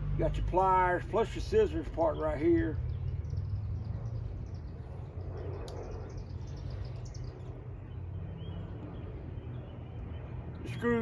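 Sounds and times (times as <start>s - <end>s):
steady low rumble: 0.0s - 11.0s
small birds chirping: 0.4s - 11.0s
sharp click: 5.6s - 5.8s.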